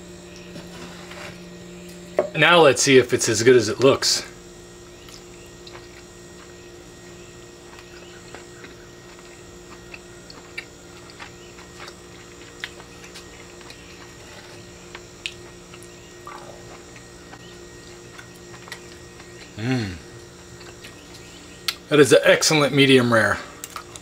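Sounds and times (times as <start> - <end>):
steady low hum: 0.0 - 24.0
person chewing: 5.0 - 6.6, 7.6 - 21.9, 23.6 - 24.0.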